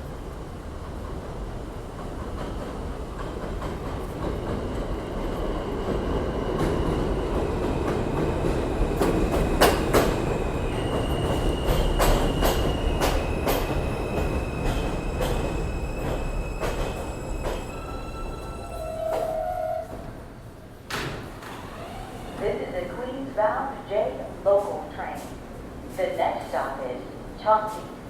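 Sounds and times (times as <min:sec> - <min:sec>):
subway train approaching: 0:00.0 - 0:28.0
high wheel squeal: 0:10.7 - 0:20.0.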